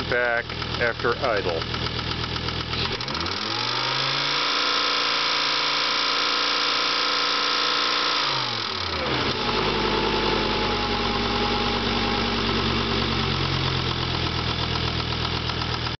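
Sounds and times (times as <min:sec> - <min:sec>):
rhythmic engine clicking: 0:00.0 - 0:09.7, 0:13.4 - 0:16.0
car engine revving and idling: 0:00.0 - 0:16.0.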